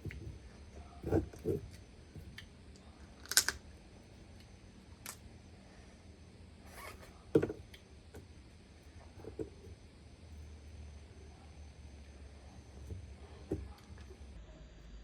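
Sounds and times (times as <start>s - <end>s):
crab shell crunching: 3.2s - 3.6s.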